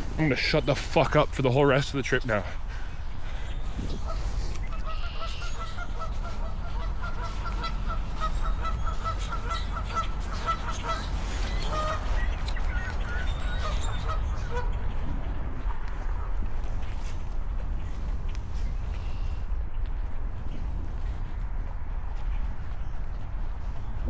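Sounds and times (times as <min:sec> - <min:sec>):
geese honking: 0:00.0 - 0:15.0.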